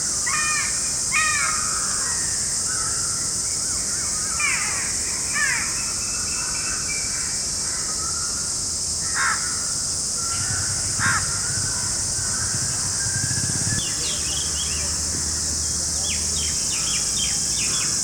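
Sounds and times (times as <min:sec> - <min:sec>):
insect hiss: 0:00.0 - 0:18.0
harsh bird calls: 0:09.0 - 0:18.0.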